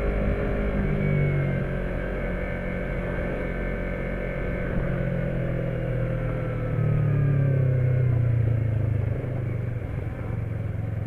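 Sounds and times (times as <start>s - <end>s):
motorcycle engine while riding: 0.0s - 11.0s.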